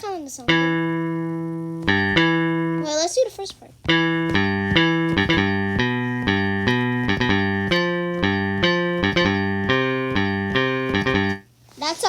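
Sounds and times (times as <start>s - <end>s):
software instrument chords: 0.5s - 2.9s, 3.9s - 11.5s.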